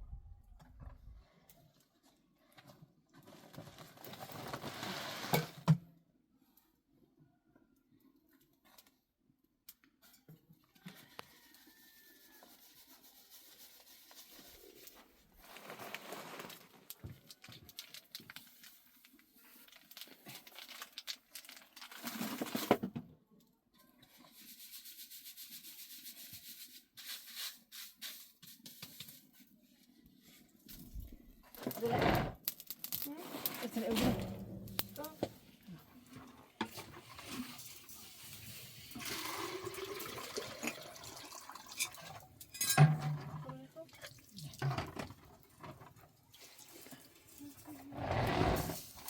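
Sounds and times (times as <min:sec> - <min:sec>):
hands rubbing and crinkling: 0:12.4 - 0:21.7.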